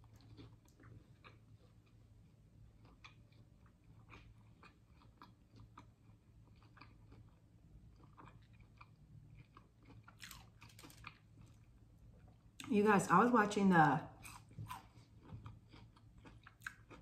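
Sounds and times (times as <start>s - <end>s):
crunchy chewing: 0.0s - 12.7s, 14.2s - 17.0s.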